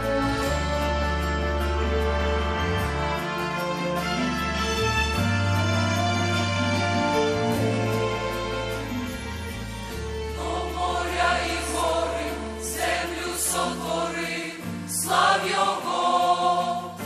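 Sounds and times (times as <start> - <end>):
bass and keyboard accompaniment: 0.0 - 17.0
choir singing a hymn: 10.3 - 17.0.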